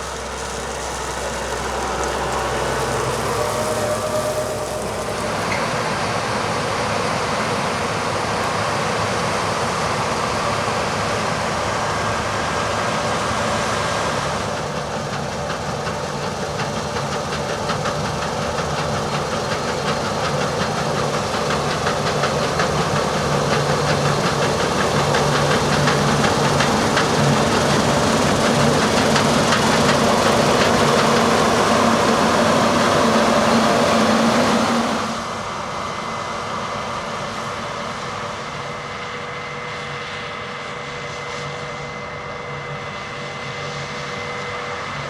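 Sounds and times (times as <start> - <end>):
heavy diesel machinery running: 0.0 - 45.0
fast rattling: 16.7 - 35.1.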